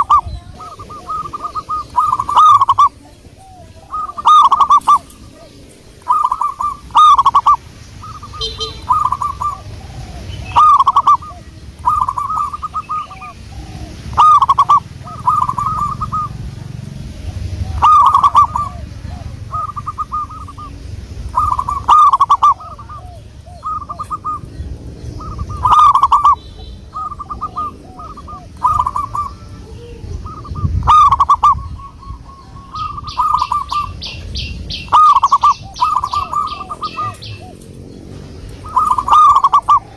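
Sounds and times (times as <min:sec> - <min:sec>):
bird high ticking trill: 0:00.0 - 0:39.9
dove cooing: 0:00.0 - 0:39.9.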